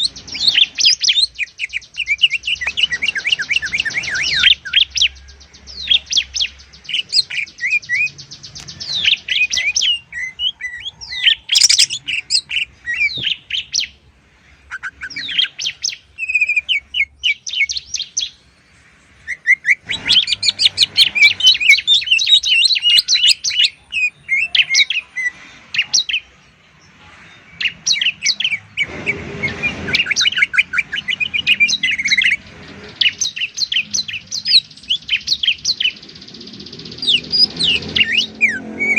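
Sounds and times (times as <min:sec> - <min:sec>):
birds chirping and trilling: 0:00.0 - 0:38.9
brief rush of noise: 0:28.7 - 0:32.9.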